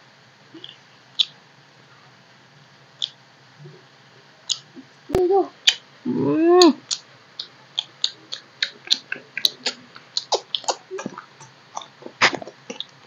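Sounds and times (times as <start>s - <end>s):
mouth smacks and clicks: 0.5s - 1.4s, 3.0s - 3.2s, 4.5s - 4.9s, 5.6s - 5.8s, 6.6s - 13.0s
person humming: 5.1s - 7.0s
close chewing of wet rice: 6.9s - 13.0s.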